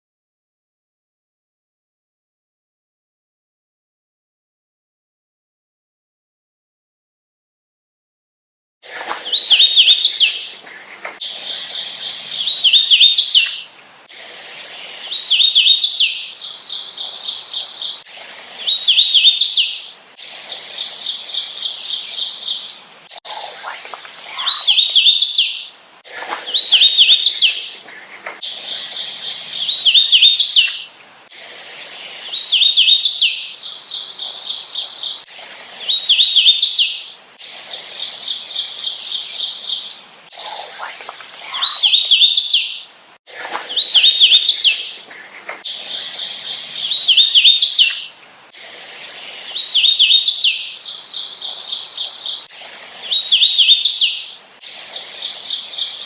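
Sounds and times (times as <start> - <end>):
warbler singing whistled notes: 9.2 - 10.6, 11.2 - 13.8, 14.8 - 20.0, 20.7 - 25.8, 26.4 - 27.8, 28.4 - 31.0, 31.9 - 43.0, 43.7 - 48.2, 49.4 - 54.4, 55.0 - 56.0
rapid bird trill: 9.2 - 13.7, 20.7 - 31.0, 37.7 - 42.9, 43.6 - 48.2.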